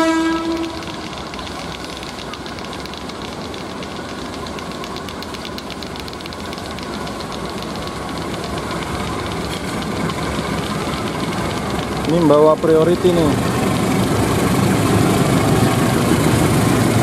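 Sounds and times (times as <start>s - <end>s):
train horn: 0.0s - 0.8s
diesel locomotive engine under load: 0.0s - 17.0s
dense patter of fine clicks: 0.2s - 17.0s.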